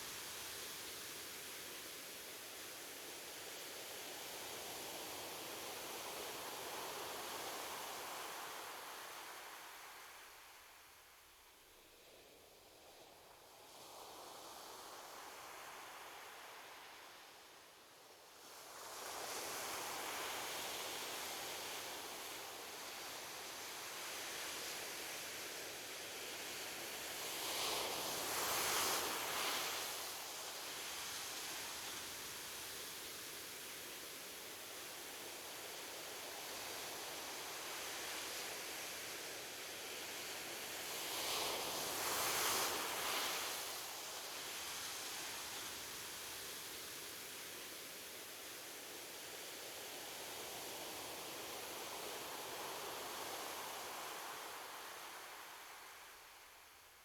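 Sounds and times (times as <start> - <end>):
surf hiss: 14.3 - 57.0.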